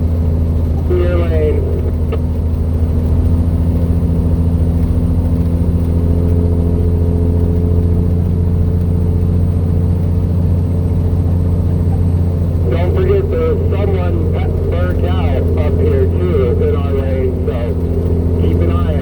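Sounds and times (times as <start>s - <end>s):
faint whine: 0.0s - 19.0s
truck diesel engine droning: 0.0s - 19.0s.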